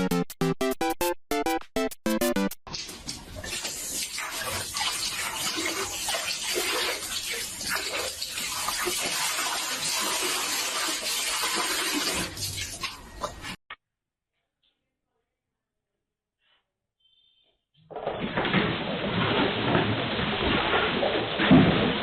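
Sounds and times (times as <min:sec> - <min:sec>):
running water with splashes: 0:02.7 - 0:13.0, 0:18.2 - 0:22.0.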